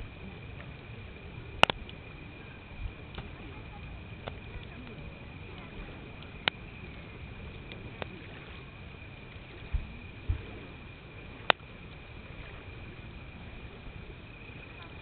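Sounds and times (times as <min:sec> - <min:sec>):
campfire hissing: 0:00.0 - 0:15.0
burning wood popping: 0:00.6 - 0:02.1
dull low thumps: 0:09.6 - 0:10.7.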